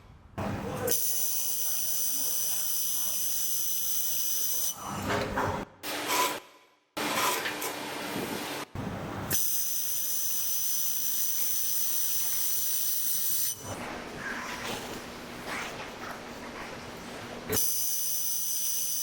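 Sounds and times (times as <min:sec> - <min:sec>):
laser welder hissing: 0:09.4 - 0:13.6, 0:17.5 - 0:19.0.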